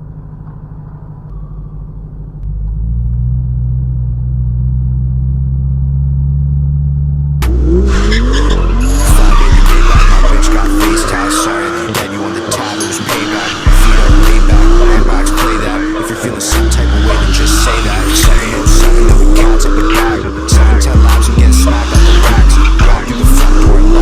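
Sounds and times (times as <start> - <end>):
car engine droning: 0.0 - 24.0
rising pitch sweeps: 7.4 - 24.0.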